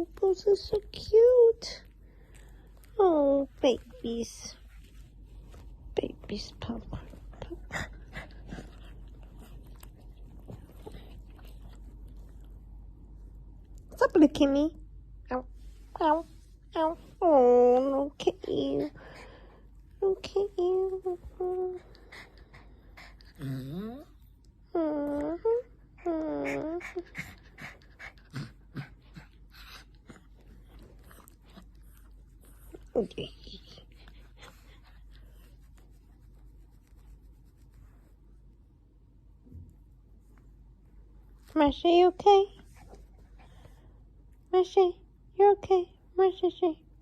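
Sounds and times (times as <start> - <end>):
puppies licking and mouthing: 0.0 - 13.9.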